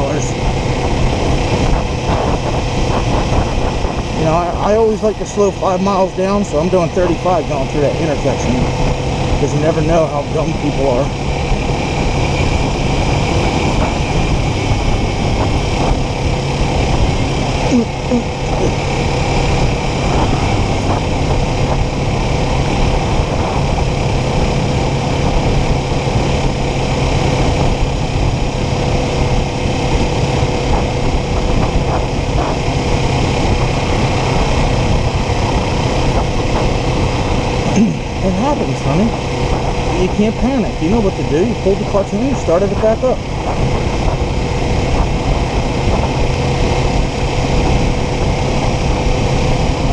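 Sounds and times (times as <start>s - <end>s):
motorcycle engine running: 0.0s - 49.9s
wind and road noise: 0.0s - 49.9s.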